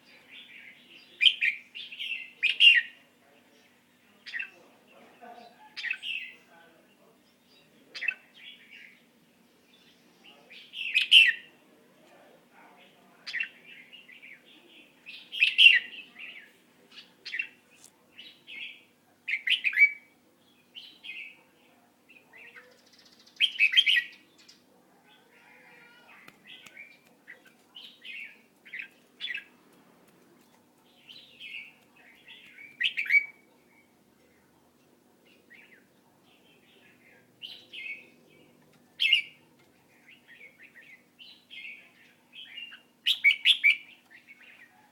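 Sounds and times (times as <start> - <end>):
bird chirping: 13.3 - 21.4, 30.4 - 44.9.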